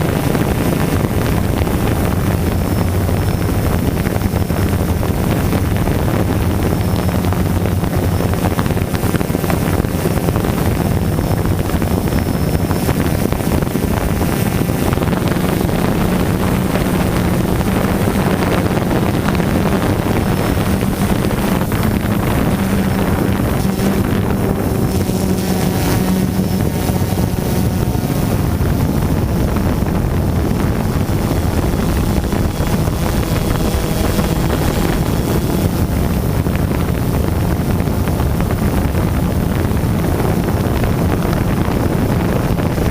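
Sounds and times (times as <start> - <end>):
drone propellers droning: 0.0 - 42.9
wind on microphone: 0.0 - 42.9.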